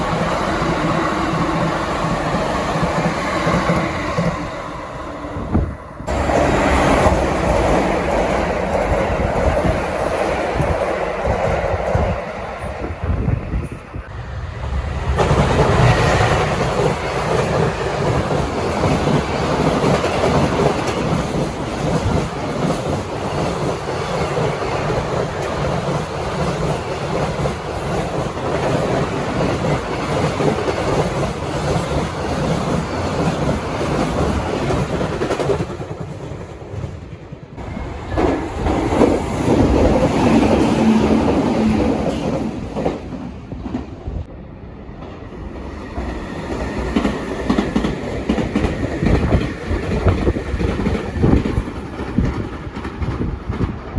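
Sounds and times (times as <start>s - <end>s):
train wheels clickety-clack: 0.0s - 4.6s, 5.5s - 13.3s, 15.0s - 44.2s, 45.0s - 53.9s.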